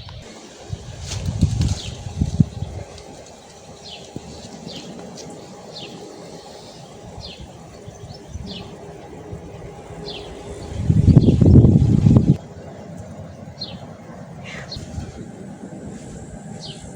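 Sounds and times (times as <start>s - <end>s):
small bird chirping: 0.0s - 12.4s
light wind: 0.0s - 16.9s.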